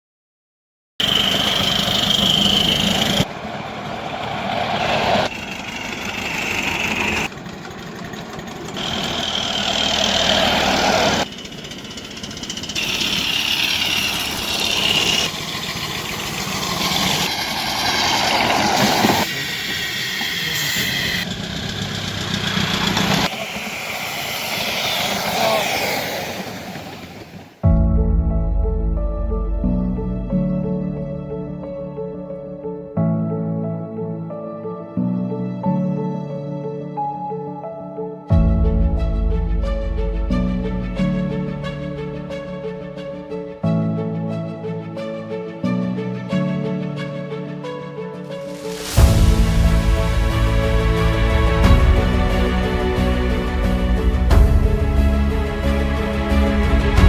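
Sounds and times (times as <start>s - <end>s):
miniature steam locomotives: 1.0s - 27.6s
voices: 25.1s - 27.3s.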